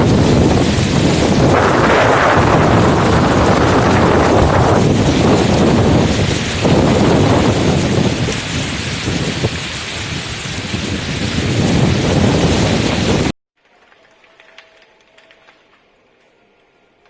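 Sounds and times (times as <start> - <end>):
heavy rain falling: 0.0 - 13.4.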